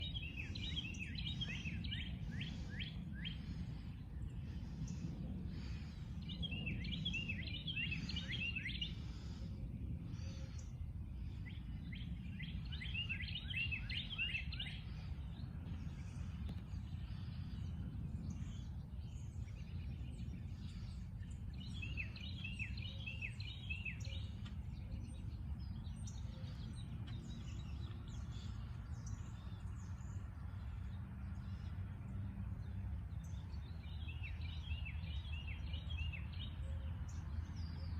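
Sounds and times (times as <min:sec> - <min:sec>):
low background rumble: 0:00.0 - 0:35.8
songbird whistling song: 0:11.4 - 0:15.4, 0:18.3 - 0:30.2, 0:33.2 - 0:37.9.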